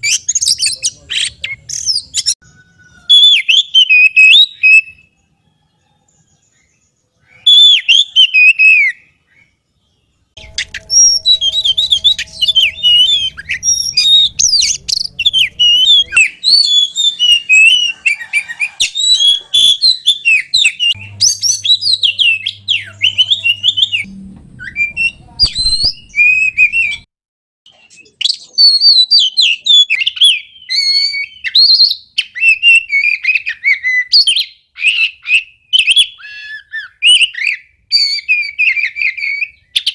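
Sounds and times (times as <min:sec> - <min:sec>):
bird singing whistled phrases: 0:00.0 - 0:05.1, 0:07.2 - 0:09.6, 0:10.4 - 0:27.1, 0:27.7 - 0:39.9.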